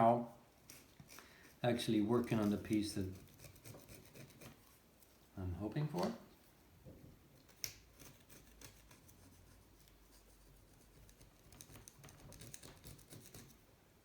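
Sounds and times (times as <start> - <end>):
hand tool scratching on metal: 0.6 - 4.8, 7.9 - 13.6.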